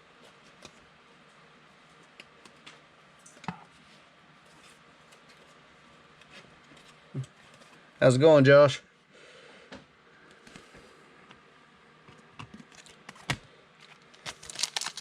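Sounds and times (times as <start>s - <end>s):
trading cards being handled: 12.6s - 15.0s.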